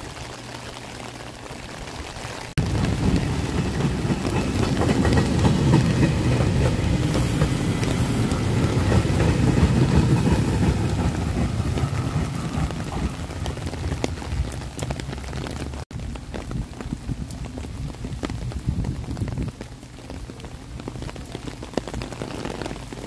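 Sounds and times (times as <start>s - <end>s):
rain falling: 0.0s - 23.0s
wheels rumbling on rails: 1.8s - 23.0s
electric train running past: 2.6s - 15.3s.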